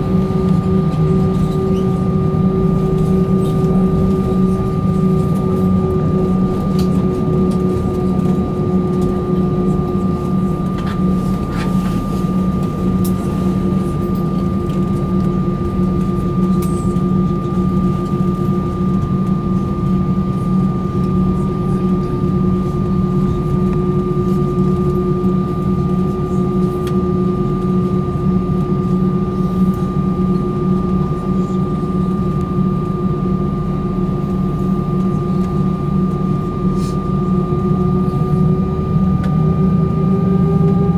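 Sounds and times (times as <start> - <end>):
high engine whine: 0.0 - 17.9
jet engine hum in cabin: 0.0 - 40.9.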